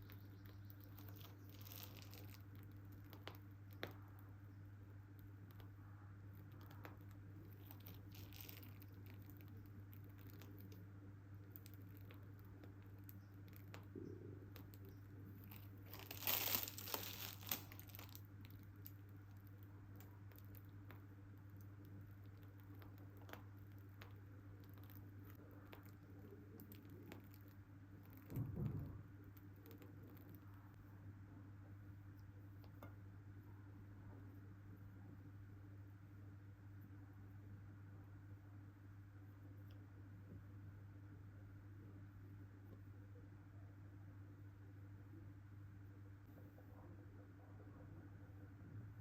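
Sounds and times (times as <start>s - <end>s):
crinkling rustle: 0.0s - 4.2s, 5.1s - 28.7s
faint low hum: 0.0s - 49.0s
handling noise: 15.5s - 18.2s.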